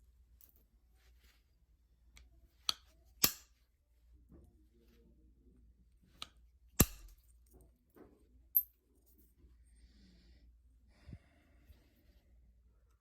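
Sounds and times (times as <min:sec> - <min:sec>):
soft handling noises: 0:00.0 - 0:06.6, 0:07.2 - 0:09.8.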